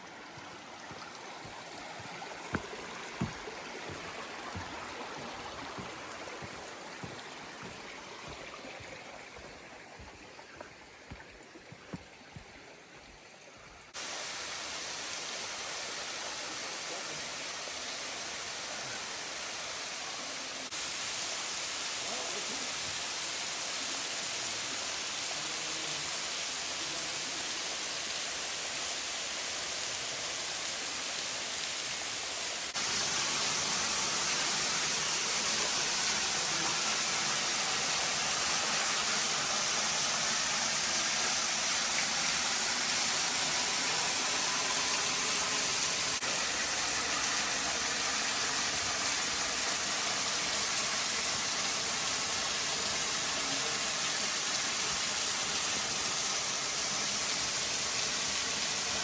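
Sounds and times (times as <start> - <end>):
waterfall rushing: 0.0 - 12.0, 32.7 - 59.0.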